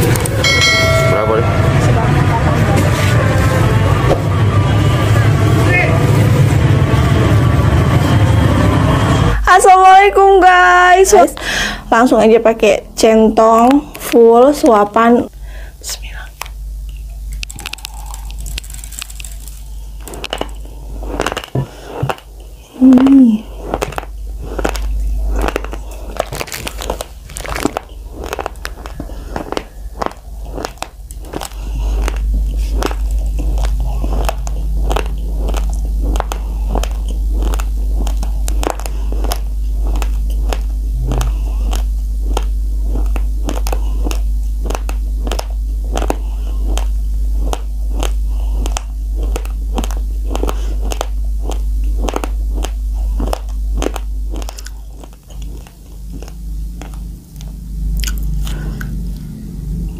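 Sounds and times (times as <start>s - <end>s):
chewing raw rice crunches: 16.4s - 59.9s.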